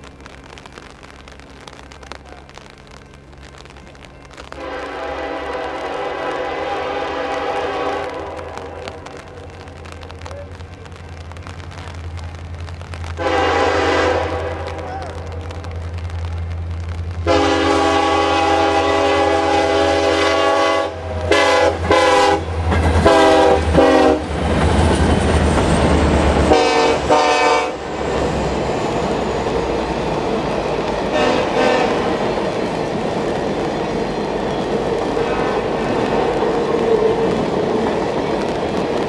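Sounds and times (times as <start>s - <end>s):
diesel engine deep rumble: 0.0s - 6.2s, 7.0s - 13.6s
locomotive air horn: 4.5s - 8.8s, 13.2s - 14.9s, 17.2s - 24.3s, 26.4s - 27.9s, 31.1s - 32.1s
train wheels clickety-clack: 21.1s - 39.0s.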